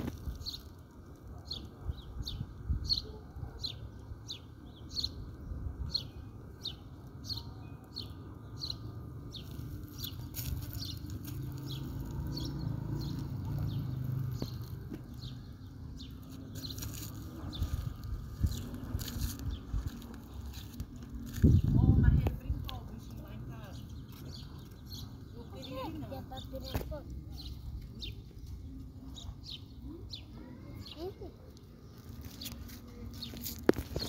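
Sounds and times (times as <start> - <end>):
bird chirping: 0.0 - 34.0
steady low rumble: 9.0 - 25.4.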